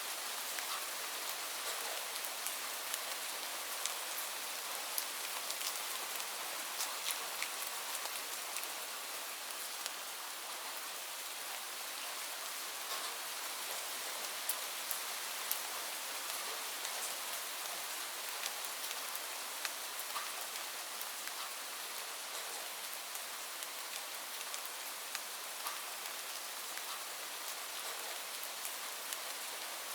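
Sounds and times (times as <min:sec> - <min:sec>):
steady rain hiss: 0:00.0 - 0:29.9
raindrops tapping on surfaces: 0:12.9 - 0:13.8, 0:19.6 - 0:20.4, 0:26.8 - 0:27.0.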